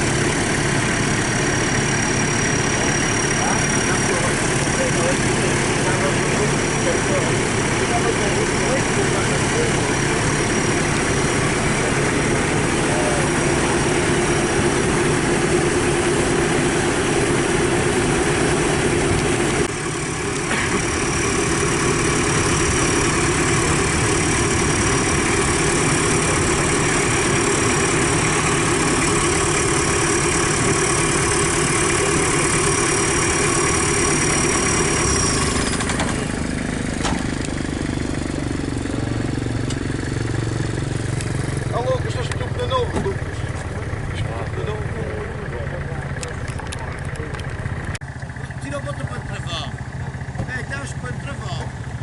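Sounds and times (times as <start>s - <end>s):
jeep and motorcycle engines running: 0.0s - 52.0s.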